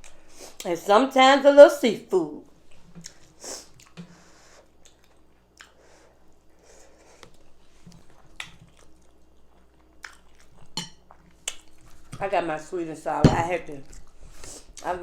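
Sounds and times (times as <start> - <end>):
wet chewing and biting: 2.8 - 4.1, 7.2 - 12.2.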